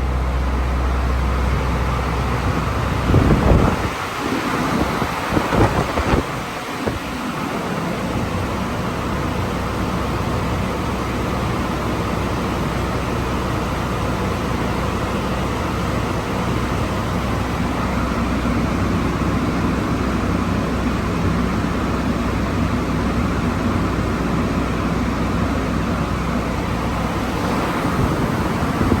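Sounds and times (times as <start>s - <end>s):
road noise: 0.0s - 20.6s, 22.5s - 29.0s
car engine running: 25.4s - 29.0s.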